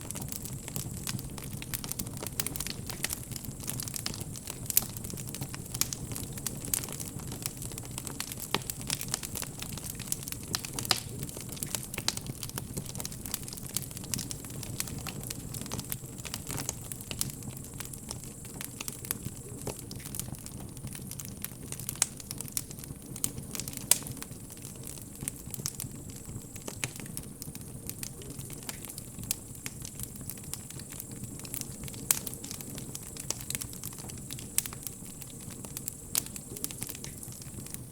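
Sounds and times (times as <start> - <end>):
wood bonfire crackling and popping: 0.0 - 37.9.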